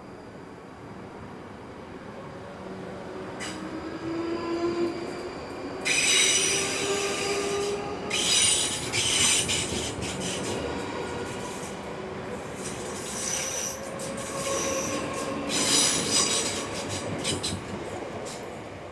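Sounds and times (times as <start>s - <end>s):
train moving along rails: 0.0s - 18.9s
high-pitched wheel squeal: 4.3s - 11.6s, 12.9s - 17.5s.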